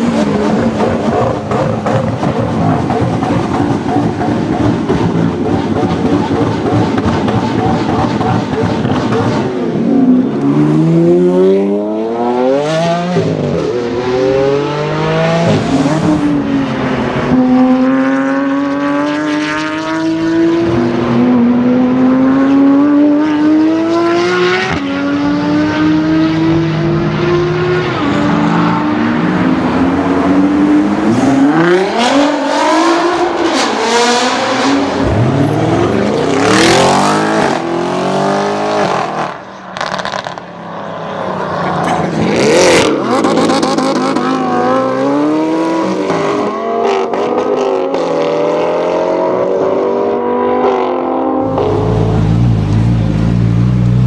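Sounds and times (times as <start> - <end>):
sports car engine accelerating: 41.3 - 54.0.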